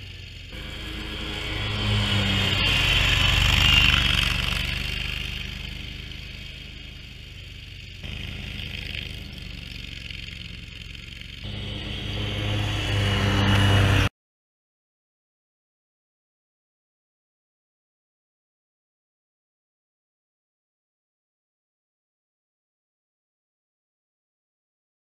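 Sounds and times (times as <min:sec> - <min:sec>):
mower engine running: 0:00.0 - 0:14.1.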